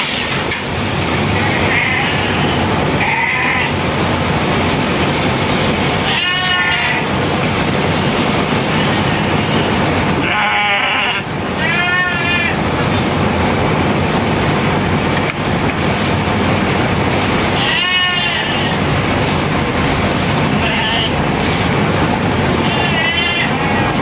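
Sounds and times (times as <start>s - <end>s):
sheep bleating: 1.4s - 3.8s, 6.0s - 7.1s, 8.7s - 12.6s, 17.6s - 18.8s, 20.6s - 21.2s, 22.6s - 24.0s.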